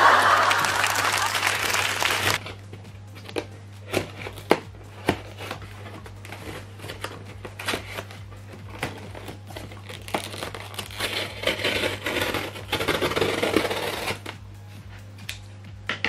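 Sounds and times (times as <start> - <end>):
cardboard parcel rustling: 3.3 - 14.4.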